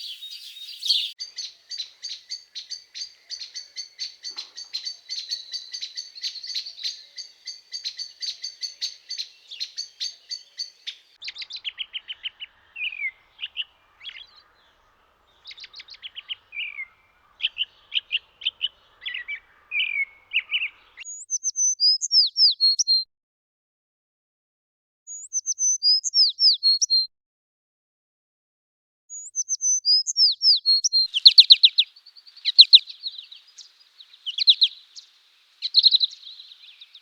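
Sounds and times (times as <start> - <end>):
bird trills and whistles: 0.0 - 14.4, 25.1 - 27.0, 29.1 - 37.0
sharp high bird calls: 0.0 - 21.2, 29.1 - 37.0
songbirds chirping: 0.0 - 22.8, 29.2 - 37.0.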